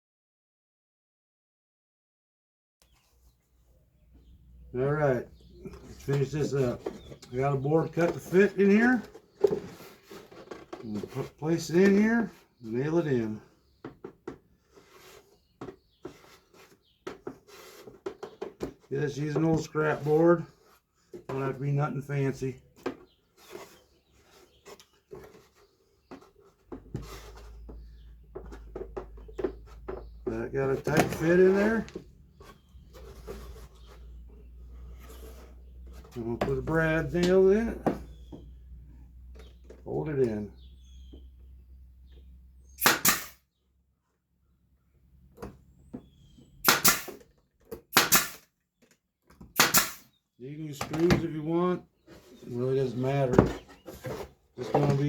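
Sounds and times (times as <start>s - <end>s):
wood rubbing and scraping on wood: 2.9s - 41.3s, 50.9s - 55.0s
brad nailer firing into wood: 42.8s - 43.4s, 46.6s - 47.2s, 47.9s - 48.5s, 49.5s - 50.1s.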